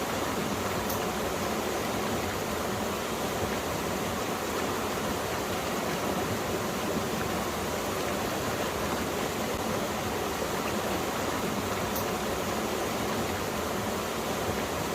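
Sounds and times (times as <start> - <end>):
stream rushing over rocks: 0.0 - 14.9.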